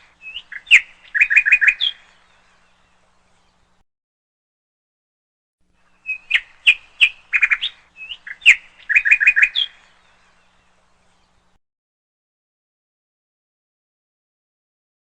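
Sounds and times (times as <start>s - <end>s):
canary chirping: 0.1s - 2.2s, 6.0s - 10.0s.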